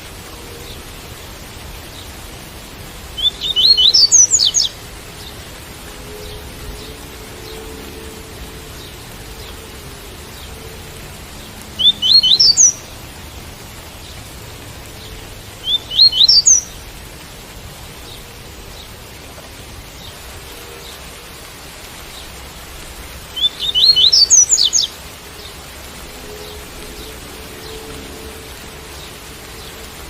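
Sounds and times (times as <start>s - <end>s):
rain hissing: 0.0s - 30.0s
bird singing rising notes: 3.2s - 4.7s, 11.8s - 12.9s, 15.6s - 16.7s, 23.3s - 25.5s.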